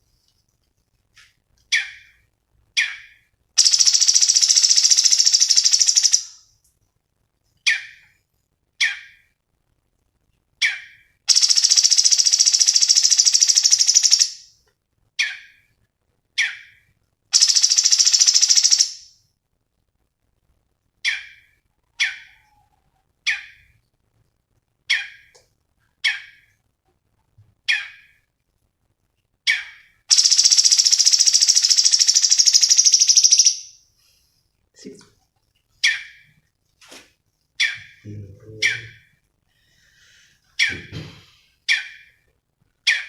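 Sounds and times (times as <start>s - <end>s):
songbird chirping: 0.0s - 6.5s, 7.5s - 9.4s, 10.6s - 14.6s, 15.2s - 19.2s, 21.0s - 24.0s, 24.8s - 26.6s, 27.4s - 28.3s, 29.4s - 36.5s, 37.5s - 42.2s
bird rattling trills: 3.6s - 6.4s, 11.3s - 14.4s, 17.4s - 19.1s, 30.1s - 33.7s.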